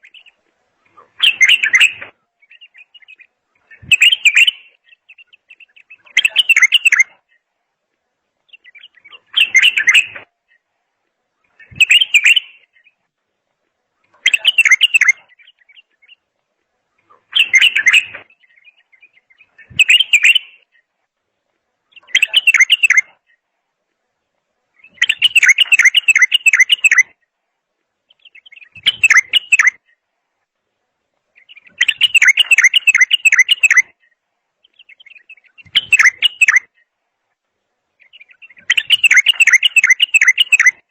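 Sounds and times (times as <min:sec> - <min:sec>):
songbird trilling: 0:01.2 - 0:07.1, 0:14.2 - 0:16.2, 0:17.3 - 0:20.6, 0:21.9 - 0:23.1, 0:24.8 - 0:27.1, 0:28.2 - 0:29.8, 0:31.4 - 0:34.0, 0:34.8 - 0:36.8, 0:38.0 - 0:40.8.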